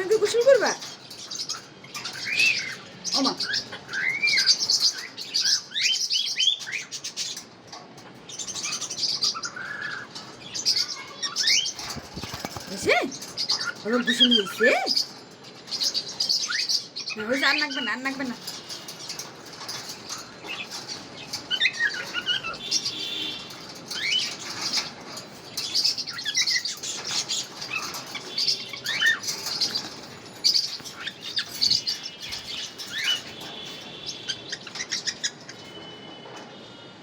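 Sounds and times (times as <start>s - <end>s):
parrots chirping: 0.0s - 35.9s
wings flapping: 11.7s - 13.2s.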